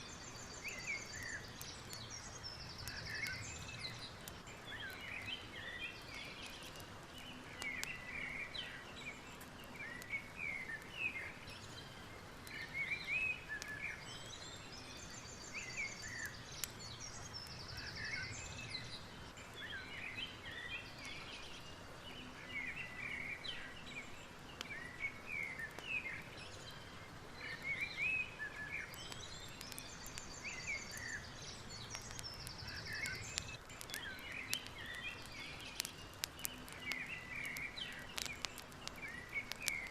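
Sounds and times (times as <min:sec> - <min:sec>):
birds chirping and singing: 0:00.0 - 0:39.9
faint crackles: 0:00.0 - 0:39.9.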